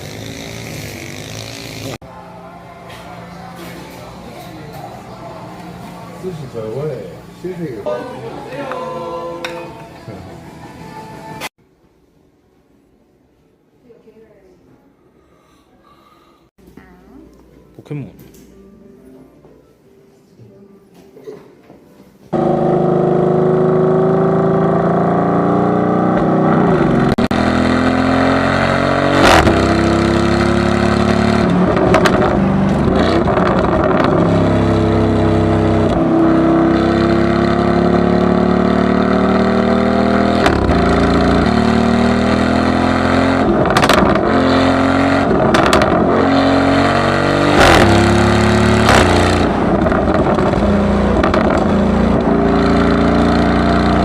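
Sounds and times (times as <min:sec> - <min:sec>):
car exhaust accelerating: 0:22.4 - 0:54.0
sharp exhaust cracks: 0:43.4 - 0:44.5.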